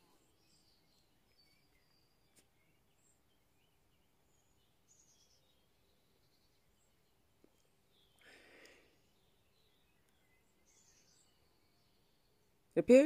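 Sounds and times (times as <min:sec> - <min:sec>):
faint bird chirps: 0:00.0 - 0:12.7
faint click: 0:07.4 - 0:08.8.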